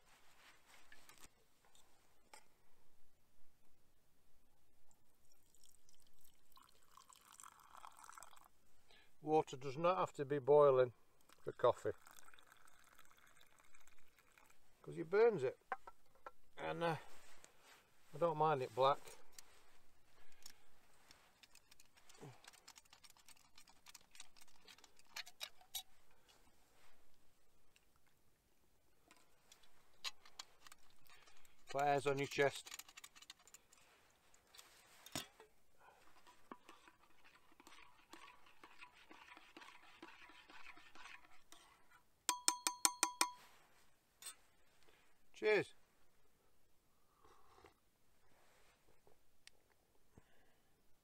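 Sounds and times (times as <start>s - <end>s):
spoon scraping in cup: 21.4s - 25.9s, 29.6s - 33.8s, 36.0s - 43.5s
cooking kit clicking and tapping: 42.3s - 43.4s
spoon clinking against cup: 42.3s - 43.5s.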